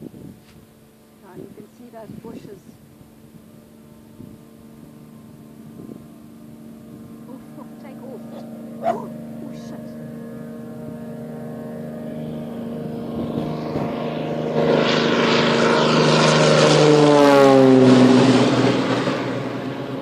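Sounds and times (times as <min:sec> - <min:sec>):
propeller aircraft taking off: 0:00.0 - 0:20.0.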